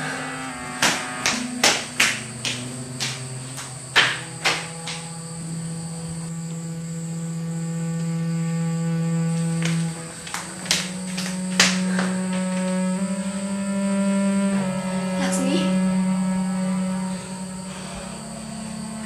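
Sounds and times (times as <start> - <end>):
faint high whine: 0.0 - 19.0
steady low drone: 0.0 - 19.0
sharp percussive strikes: 0.8 - 3.2.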